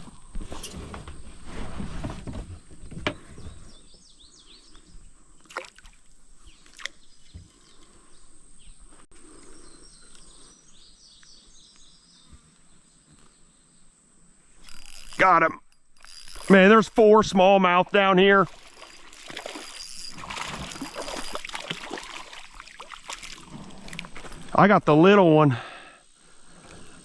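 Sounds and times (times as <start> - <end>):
water sloshing against kayak hull: 18.0 - 24.6.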